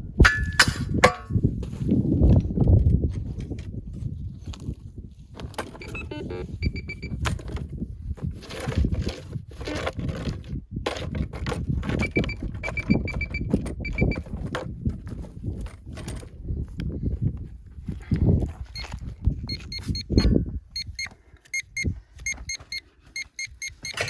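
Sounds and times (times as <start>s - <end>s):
rustling and scraping: 0.8s - 20.2s
metal detector beeps: 5.8s - 7.2s, 12.0s - 14.3s, 18.8s - 24.0s.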